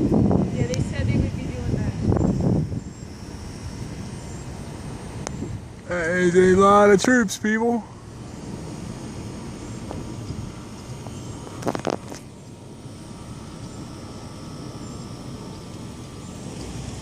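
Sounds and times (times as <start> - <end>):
jet aircraft rumbling overhead: 0.0 - 17.0.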